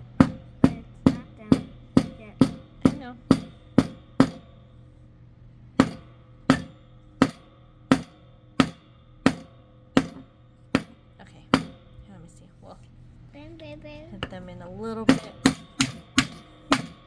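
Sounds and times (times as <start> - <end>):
hammer striking nails into wood: 0.2 - 4.5, 5.8 - 11.8, 15.1 - 17.0.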